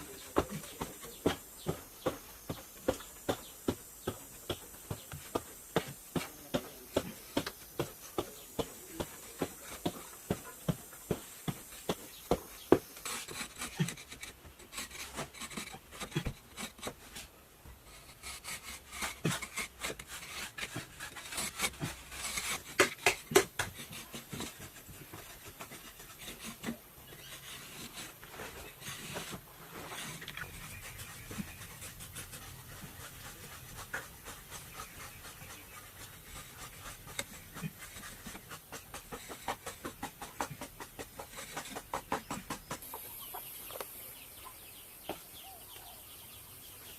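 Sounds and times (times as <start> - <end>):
scraping and rubbing: 0.0 - 42.9
sharp knocks and taps: 32.8 - 42.9.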